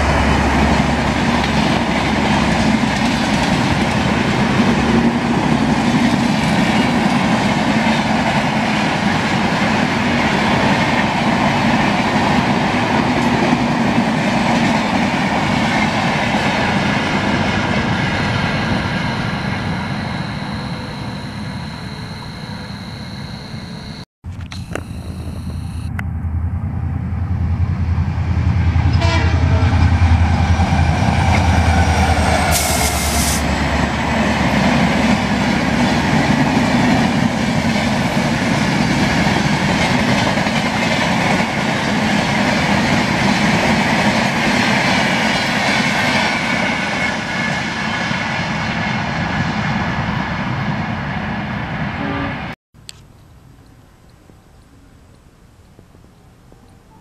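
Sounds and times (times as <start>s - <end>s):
train coaches clattering over rails: 0.0s - 21.6s, 30.3s - 48.2s
locomotive rumble passing: 0.0s - 23.2s, 25.5s - 52.6s.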